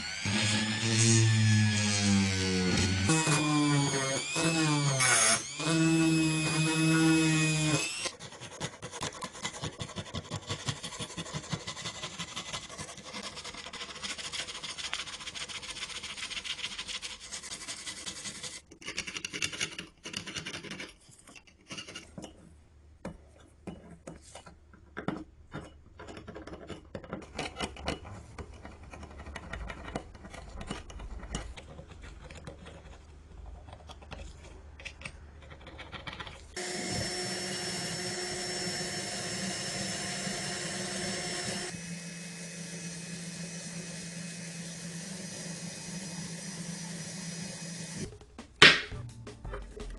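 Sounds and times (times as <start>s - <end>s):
hand tool rasping: 0.2s - 20.9s.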